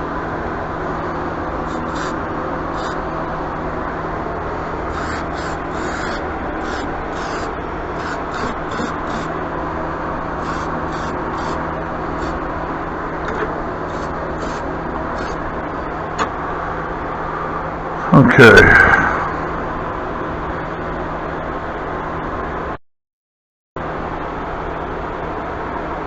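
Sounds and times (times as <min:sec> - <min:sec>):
steady background hum: 0:00.0 - 0:22.8, 0:23.8 - 0:26.0
rubbing strokes on surface: 0:04.9 - 0:09.3.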